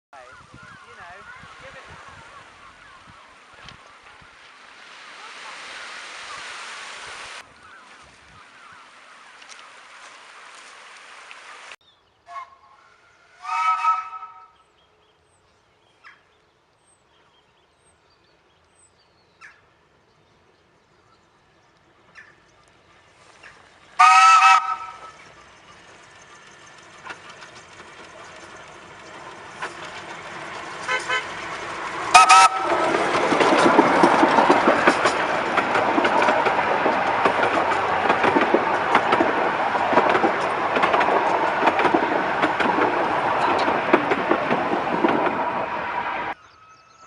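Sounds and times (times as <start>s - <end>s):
miniature train toots: 12.3s - 14.6s, 24.0s - 25.4s, 30.4s - 35.2s
miniature train rattling past: 21.5s - 47.0s.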